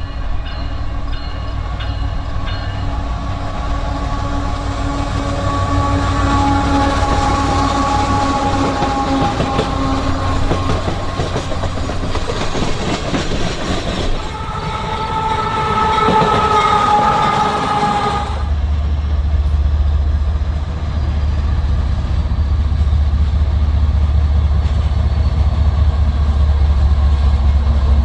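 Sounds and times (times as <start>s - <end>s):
train rumble and rail clatter: 0.0s - 28.0s
locomotive air horn: 2.9s - 11.7s, 14.2s - 18.6s.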